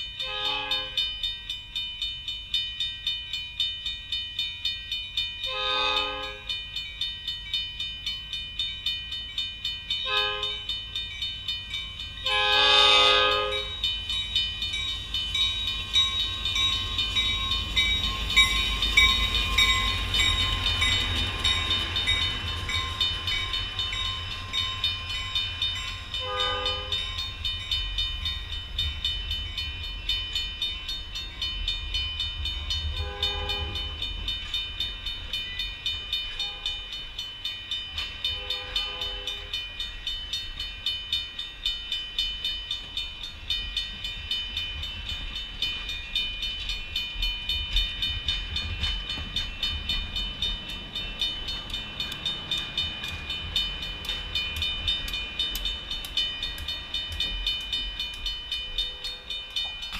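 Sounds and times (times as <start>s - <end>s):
railroad crossing bell ringing: 0.0s - 59.9s
train cars rumbling over rails: 0.0s - 59.9s
train horn blasts: 0.2s - 1.0s, 5.5s - 6.5s, 10.0s - 10.7s, 12.2s - 13.8s, 26.2s - 27.0s, 33.0s - 34.0s, 38.3s - 39.5s.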